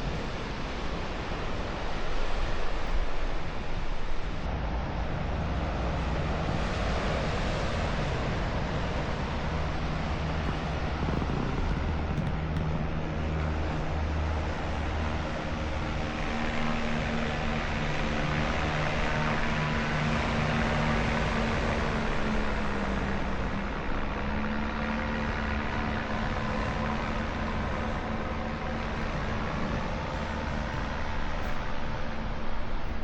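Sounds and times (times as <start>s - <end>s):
road noise: 0.0s - 33.0s
vehicle engine running: 4.5s - 33.0s.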